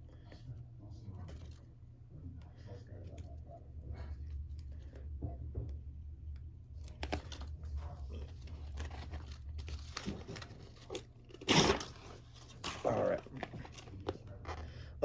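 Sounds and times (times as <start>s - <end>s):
steady low hum: 0.0s - 15.0s
backing paper peeling and crinkling: 6.9s - 14.6s.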